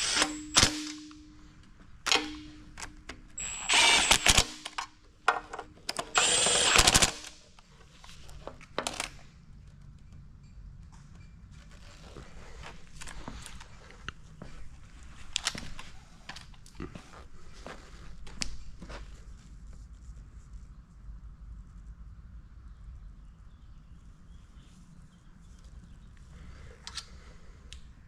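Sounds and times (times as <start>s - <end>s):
power tool whining: 0.0s - 1.2s, 3.4s - 4.8s, 5.9s - 7.4s.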